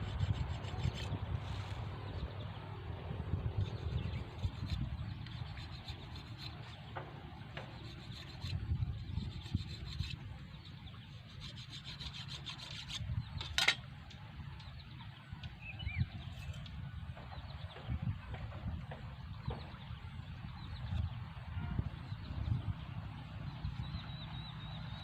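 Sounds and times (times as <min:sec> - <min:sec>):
knife scraping bamboo stick: 0:00.0 - 0:01.9, 0:03.6 - 0:06.8, 0:07.6 - 0:10.2, 0:11.1 - 0:13.8.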